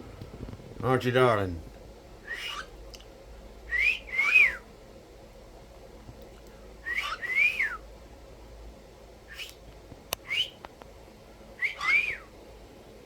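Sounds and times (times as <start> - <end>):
cockatiel whistling: 2.2 - 2.7, 3.7 - 4.6, 6.8 - 7.8, 10.2 - 10.6, 11.6 - 12.3.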